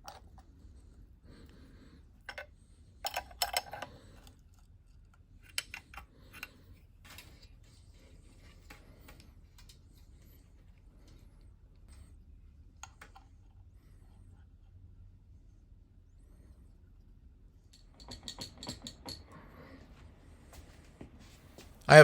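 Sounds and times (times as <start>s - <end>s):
low steady hum: 0.0s - 17.8s
metal clinks and taps: 17.7s - 19.3s.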